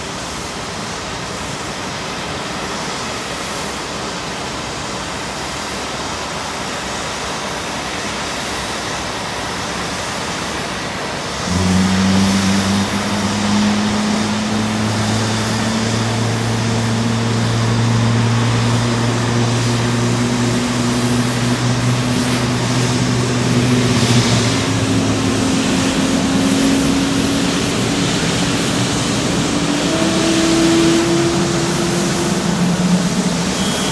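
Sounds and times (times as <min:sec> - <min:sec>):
jet engine spooling up hum: 0:00.0 - 0:33.9
jet engine rushing noise: 0:08.4 - 0:33.9.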